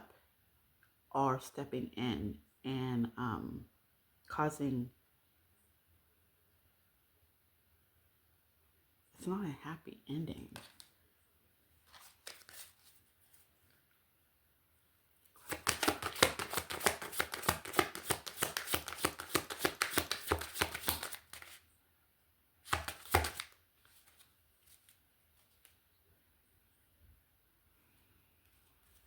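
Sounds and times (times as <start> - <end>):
runes clattering while shuffled: 15.4 - 21.6, 22.7 - 24.8.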